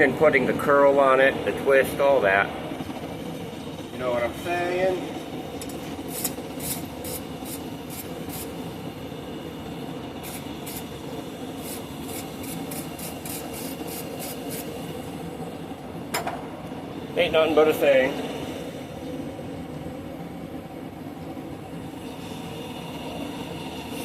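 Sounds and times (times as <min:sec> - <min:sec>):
forge running noise: 0:00.0 - 0:24.0
scraping strokes on metal: 0:11.6 - 0:14.7.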